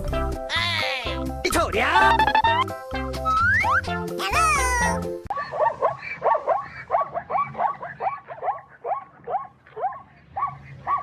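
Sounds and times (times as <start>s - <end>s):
animal yelping calls: 5.3s - 11.0s.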